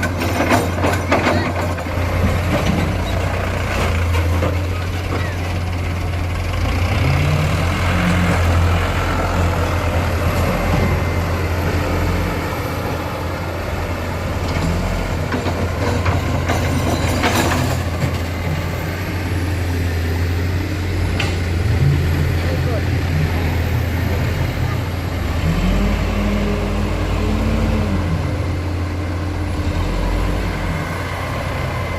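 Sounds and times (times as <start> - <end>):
clatter: 0.0 - 5.4, 14.4 - 18.7
diesel engines droning: 0.0 - 31.9.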